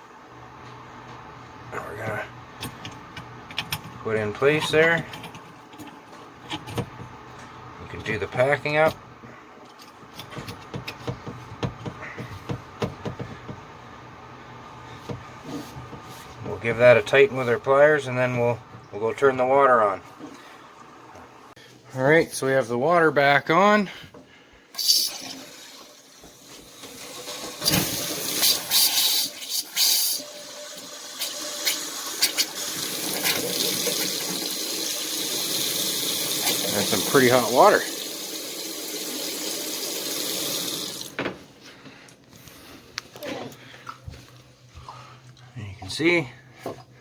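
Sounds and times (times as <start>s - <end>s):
hot water running: 24.8s - 41.2s.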